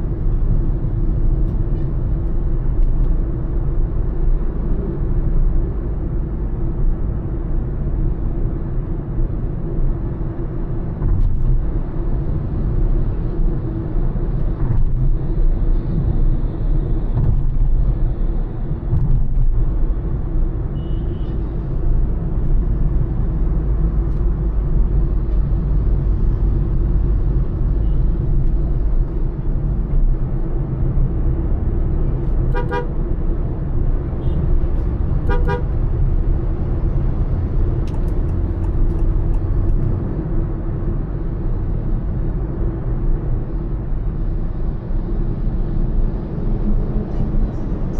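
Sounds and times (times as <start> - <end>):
car engine and tyre rumble: 0.0 - 47.9
car horn toots: 32.5 - 32.9, 35.3 - 35.7.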